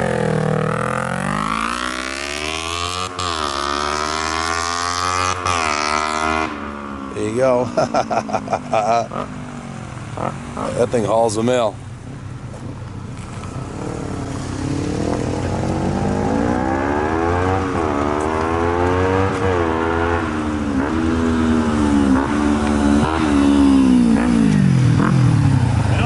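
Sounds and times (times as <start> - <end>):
motorcycle engine revving hard: 0.0 - 7.3, 10.1 - 10.9, 13.7 - 26.0.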